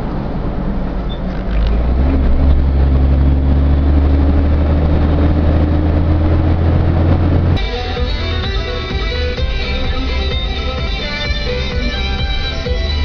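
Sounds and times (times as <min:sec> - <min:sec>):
truck diesel engine rumbling: 0:00.0 - 0:13.0
guitar music: 0:07.6 - 0:13.0.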